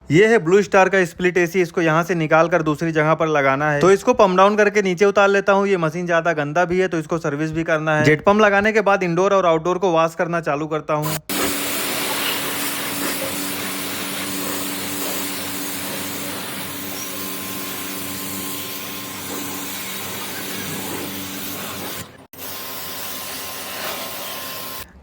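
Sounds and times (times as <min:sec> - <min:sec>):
hiss of water spray: 0:11.1 - 0:24.9
pressure washer motor humming: 0:11.1 - 0:25.0.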